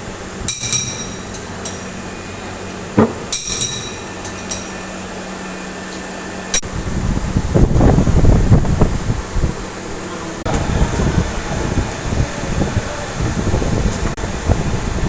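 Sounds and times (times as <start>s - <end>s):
light metallic clinks: 0.5s - 1.9s, 3.3s - 4.8s.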